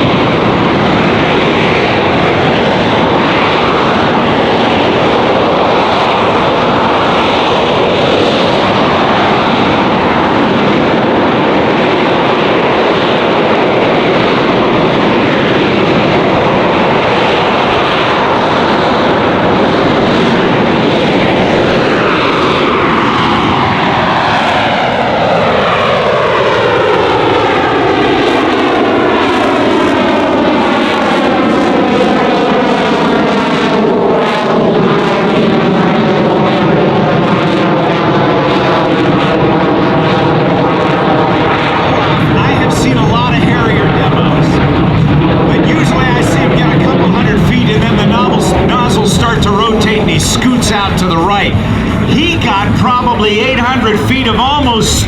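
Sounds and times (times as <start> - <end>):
jet engine roar: 0.0 - 55.0.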